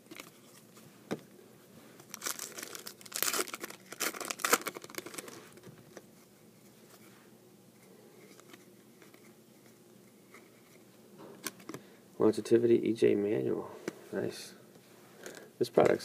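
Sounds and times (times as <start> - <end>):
wrapper tearing and crinkling: 2.0 - 5.6.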